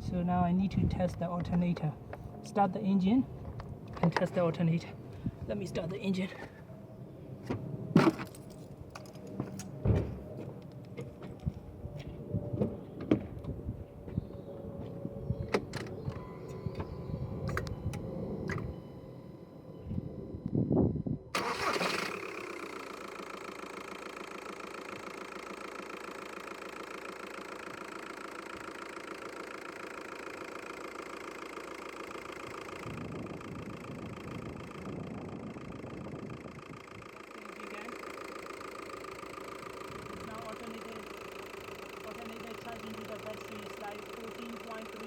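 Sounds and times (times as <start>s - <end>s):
diesel engine cranking and idling: 15.2s - 45.0s.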